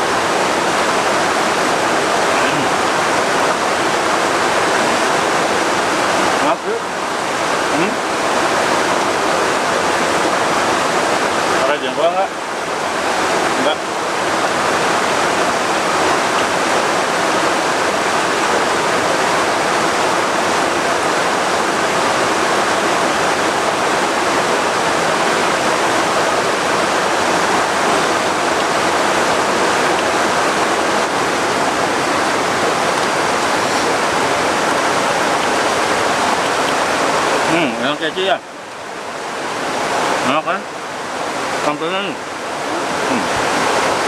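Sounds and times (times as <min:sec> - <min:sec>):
heavy rain pouring: 0:00.0 - 0:44.0.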